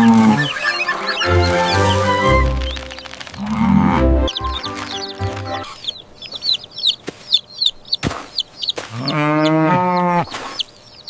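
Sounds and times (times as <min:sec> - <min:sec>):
poultry peeping and clucking: 0:00.0 - 0:11.0
cow mooing: 0:03.4 - 0:04.1.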